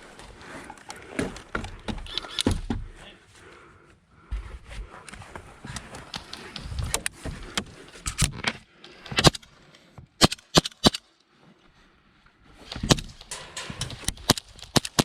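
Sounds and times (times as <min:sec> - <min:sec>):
airsoft guns firing: 0:14.1 - 0:15.0.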